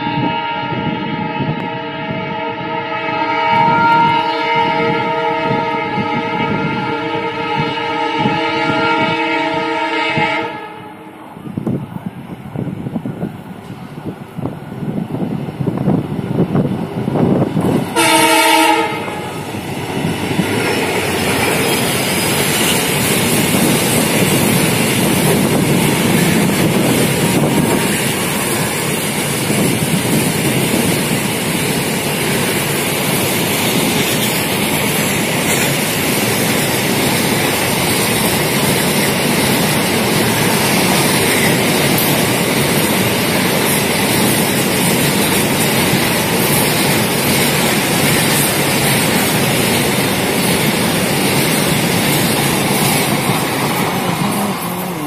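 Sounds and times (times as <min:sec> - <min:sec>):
locomotive horn blast: 0:00.0 - 0:11.2, 0:17.9 - 0:19.5
container train rushing past: 0:00.0 - 0:55.0
wheels clacking over rail joints: 0:17.3 - 0:55.0.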